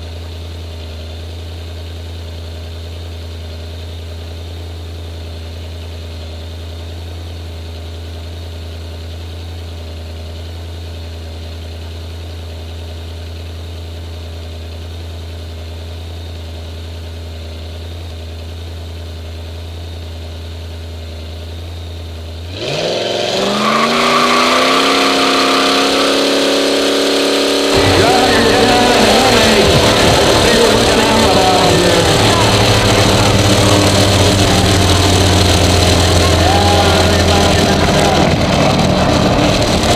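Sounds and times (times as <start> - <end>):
engine idling: 0.0 - 22.8, 23.6 - 39.9
engine revving to high pitch: 22.5 - 39.9.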